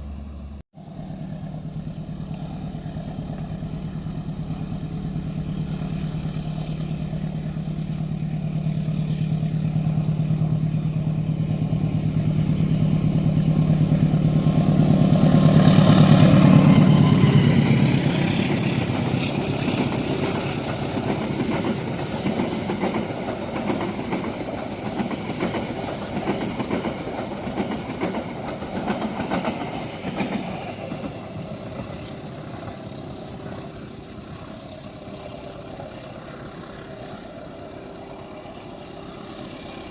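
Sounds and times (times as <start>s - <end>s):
diesel locomotive engine drone: 0.0s - 39.9s
train wheels clacking over rail joints: 1.3s - 39.9s.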